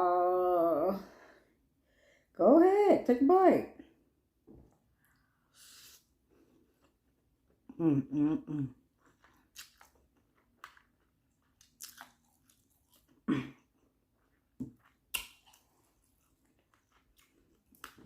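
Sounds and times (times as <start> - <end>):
chewing noodles: 8.9 - 18.0.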